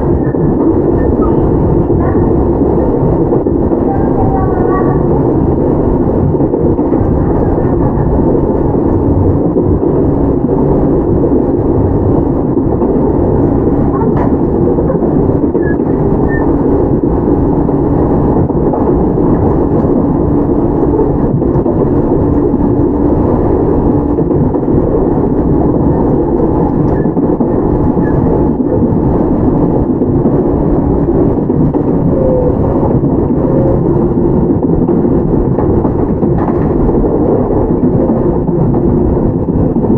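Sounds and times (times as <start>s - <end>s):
train motor hum: 0.0s - 39.9s
train wheels rumbling on rail: 0.0s - 39.9s.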